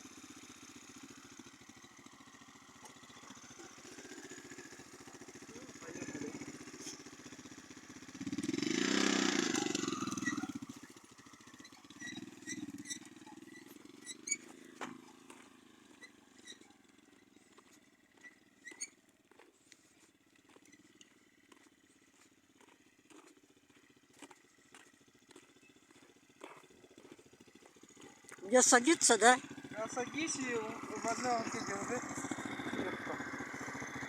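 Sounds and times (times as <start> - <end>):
moped engine idling: 0.0 - 34.0.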